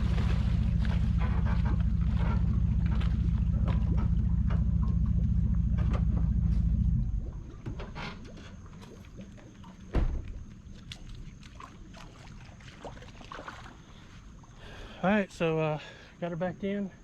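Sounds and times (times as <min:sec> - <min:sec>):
vehicle engine rumbling: 0:00.0 - 0:11.4
loud thump: 0:09.9 - 0:10.3.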